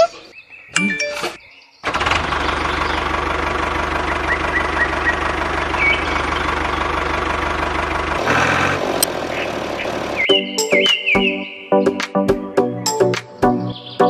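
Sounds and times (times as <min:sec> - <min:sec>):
engine idling with low knock: 0:02.0 - 0:10.2.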